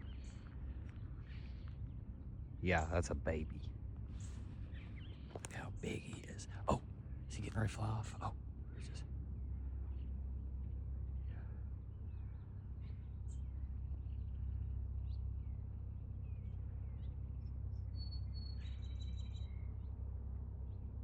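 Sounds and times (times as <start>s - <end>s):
birds chirping: 0.0s - 20.0s
steady low rumble: 0.0s - 21.0s.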